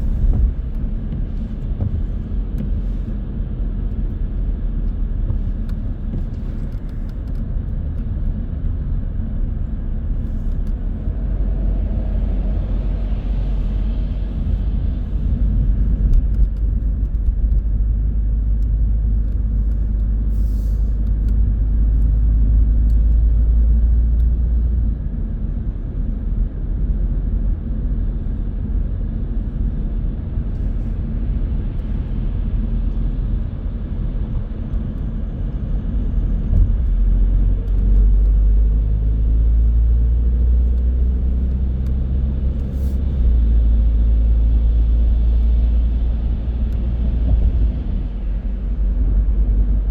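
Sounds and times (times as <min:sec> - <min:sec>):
car engine and tyre rumble: 0:00.0 - 0:49.9.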